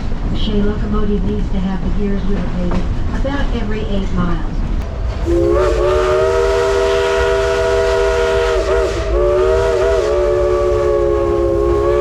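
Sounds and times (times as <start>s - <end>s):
train low rumble: 0.0s - 12.0s
steam chime whistle: 5.2s - 12.0s.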